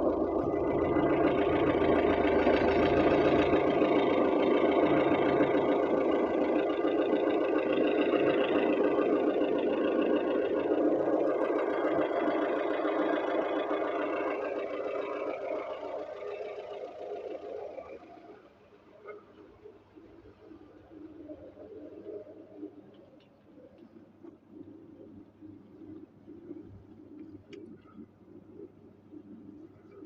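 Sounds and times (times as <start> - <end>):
car engine idling: 0.0 - 22.4.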